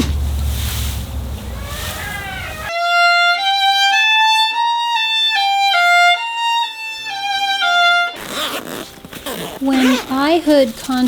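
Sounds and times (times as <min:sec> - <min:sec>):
rushing noise with low rumble: 0:00.0 - 0:02.7
solo violin melody: 0:02.6 - 0:08.3.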